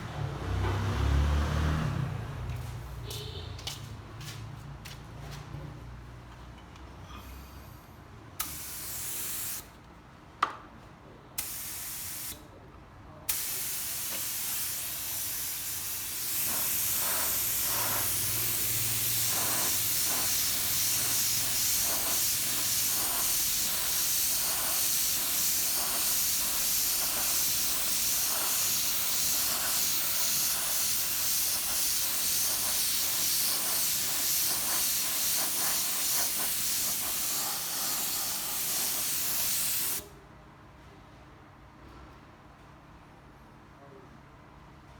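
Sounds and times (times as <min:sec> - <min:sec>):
spray paint hissing: 0:08.4 - 0:09.7, 0:11.4 - 0:12.4, 0:13.3 - 0:40.1.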